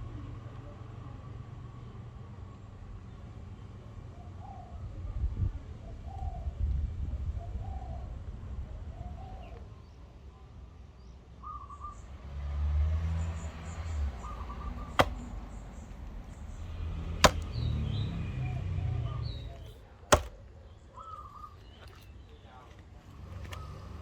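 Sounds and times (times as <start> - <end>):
sharp knocks: 15.0 - 15.2, 17.2 - 17.5, 20.1 - 20.3.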